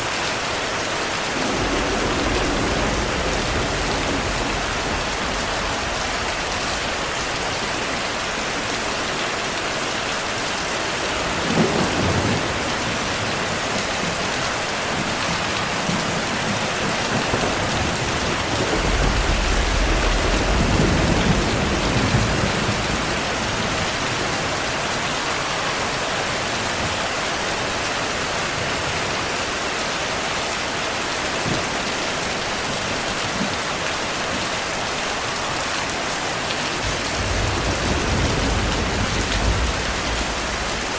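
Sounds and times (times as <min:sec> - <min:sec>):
steady rainfall: 0:00.0 - 0:40.9
thunder rolling: 0:01.1 - 0:09.2, 0:10.9 - 0:27.1, 0:36.8 - 0:40.9.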